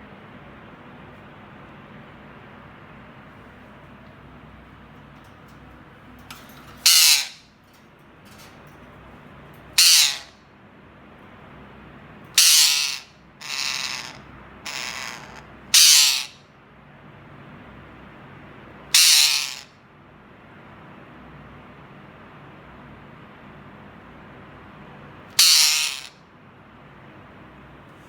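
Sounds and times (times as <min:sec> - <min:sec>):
parrot giving harsh calls: 0:06.6 - 0:07.5, 0:09.8 - 0:10.4, 0:12.4 - 0:16.4, 0:18.9 - 0:19.7, 0:25.3 - 0:26.2.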